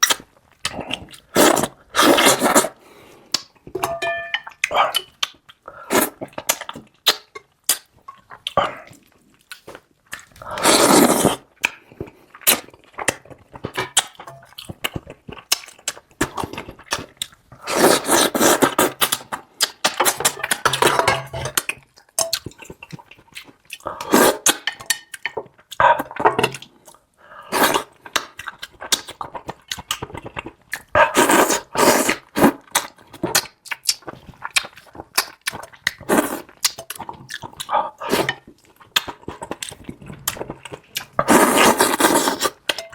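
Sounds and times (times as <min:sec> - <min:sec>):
chewing and mouth smacks: 0:04.5 - 0:17.6, 0:21.6 - 0:27.0, 0:27.8 - 0:31.4, 0:32.1 - 0:42.9.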